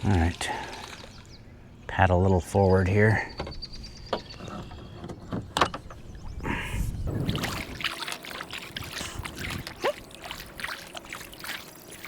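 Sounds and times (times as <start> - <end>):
water splashing and dripping: 0.0 - 1.3, 7.1 - 12.0
paddle swishing through water: 7.1 - 12.0.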